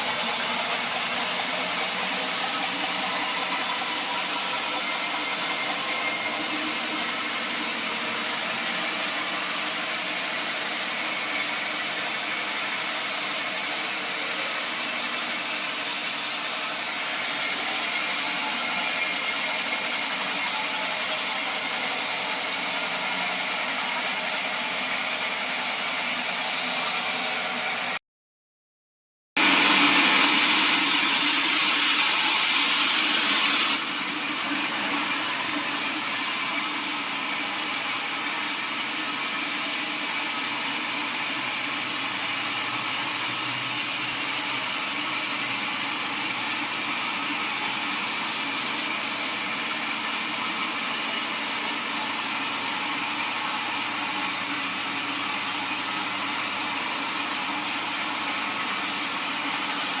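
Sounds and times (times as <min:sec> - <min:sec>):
machine running: 0:00.0 - 0:28.0
sawmill saw cutting wood: 0:00.0 - 0:28.0, 0:29.4 - 1:00.0.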